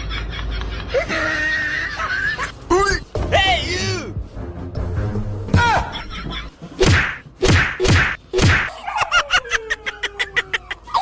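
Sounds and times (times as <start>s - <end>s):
comic slap sound effects: 6.8s - 8.7s.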